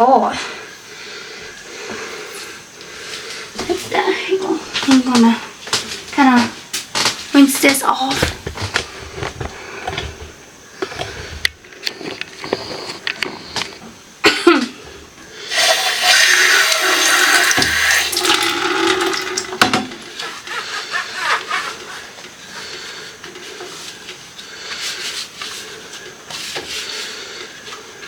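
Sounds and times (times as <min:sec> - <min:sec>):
running water splashing: 0:15.5 - 0:22.1.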